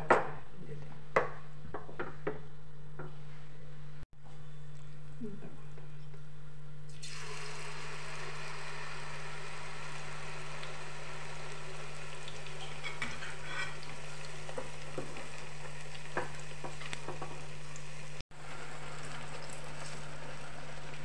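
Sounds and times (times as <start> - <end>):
batter sizzling in hot oil: 6.9 - 21.0.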